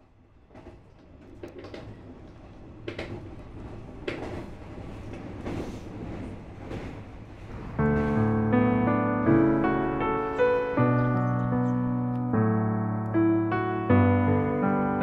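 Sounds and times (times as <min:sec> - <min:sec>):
train rumbling on rails: 0:00.0 - 0:12.0
wheels clacking over rail joints: 0:00.5 - 0:08.9
piano music: 0:07.8 - 0:15.0.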